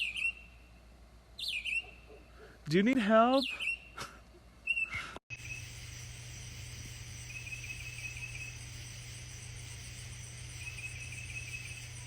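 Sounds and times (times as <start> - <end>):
low hum: 5.3 - 12.0
night insects chorus: 5.3 - 12.0.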